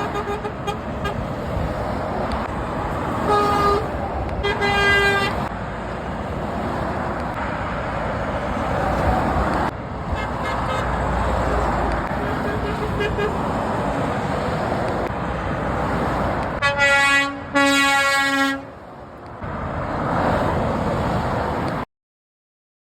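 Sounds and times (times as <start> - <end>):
truck horn blasts: 0.0 - 1.3, 3.2 - 5.5, 10.1 - 11.0, 12.1 - 13.5, 16.6 - 18.8
motorway traffic: 0.0 - 21.9.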